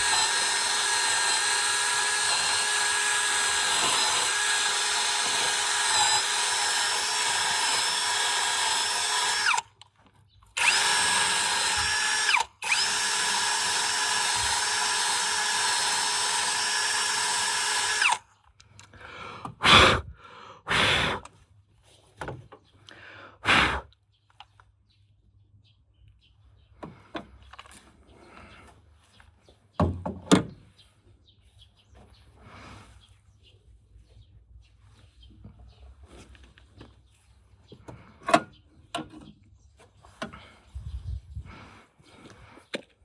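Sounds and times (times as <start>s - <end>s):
power tool motor running: 0.0s - 9.7s, 10.6s - 18.2s.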